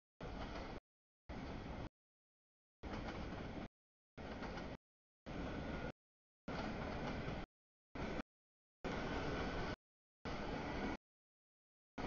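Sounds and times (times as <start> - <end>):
train wheels rolling on rails: 0.2 - 1.9, 2.8 - 8.2, 8.9 - 11.0.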